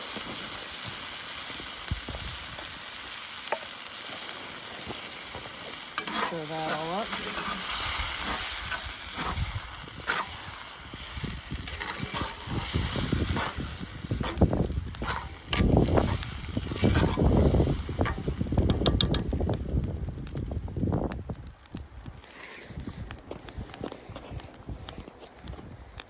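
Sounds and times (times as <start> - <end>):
pot sizzling: 0.0 - 23.1
spoon stirring and scraping sauce: 6.0 - 10.4, 11.7 - 17.2.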